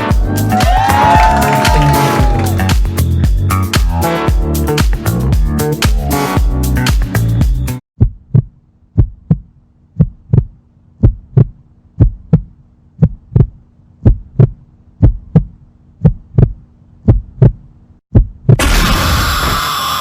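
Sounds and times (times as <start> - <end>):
heartbeat thumps: 8.0 - 18.6.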